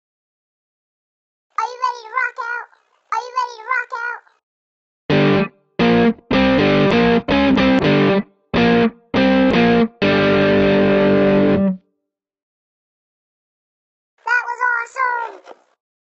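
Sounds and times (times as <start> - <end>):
distorted electric guitar riff: 5.1 - 11.8.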